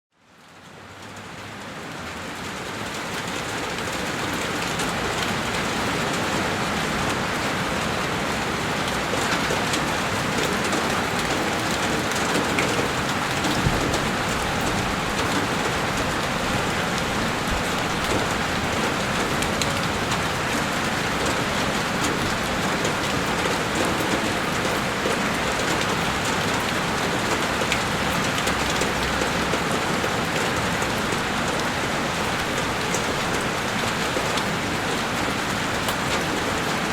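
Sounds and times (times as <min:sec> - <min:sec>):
heavy rain on a window: 0:00.2 - 0:36.9.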